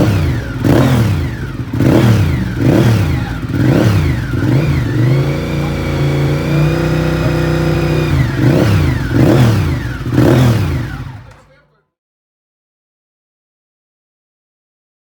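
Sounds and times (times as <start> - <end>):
motorcycle engine revving: 0.0 - 11.5.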